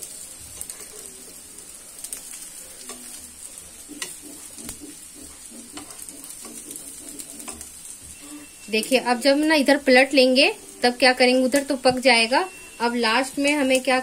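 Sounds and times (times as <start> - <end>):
oil sizzling in a pan: 0.0 - 14.0
tongs clicking and scraping pan: 2.0 - 8.0.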